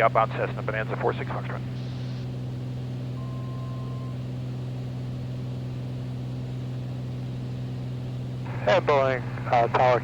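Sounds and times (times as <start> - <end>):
propeller plane engine droning: 0.0 - 10.0.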